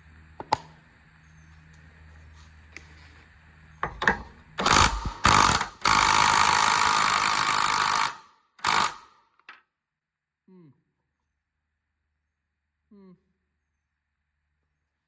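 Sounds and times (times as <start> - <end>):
impact wrench hammering: 3.8 - 9.1.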